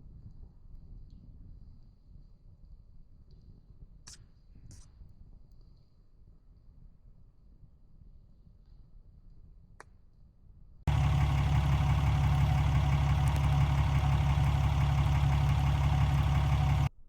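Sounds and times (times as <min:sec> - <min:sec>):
truck engine idling: 0:10.9 - 0:16.9.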